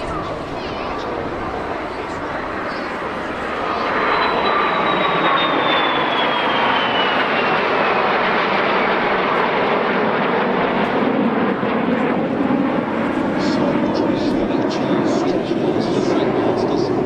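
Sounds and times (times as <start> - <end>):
jet aircraft flying past: 0.0 - 17.0.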